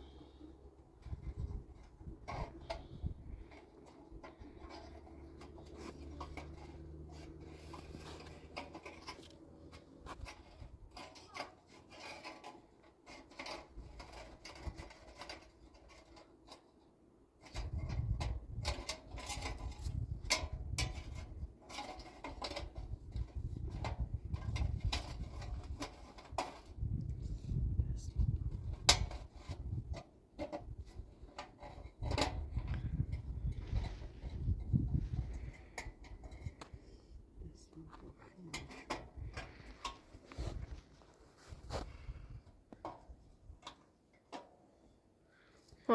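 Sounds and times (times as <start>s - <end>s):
wind buffeting microphone: 1.0s - 3.5s, 19.6s - 21.5s, 26.7s - 30.0s, 32.0s - 36.6s
knocks and clatter of handling: 1.0s - 16.8s.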